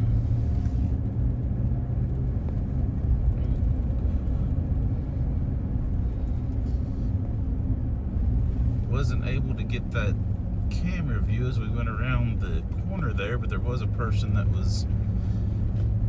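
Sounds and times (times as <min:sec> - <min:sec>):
vehicle interior rumble: 0:00.0 - 0:16.0.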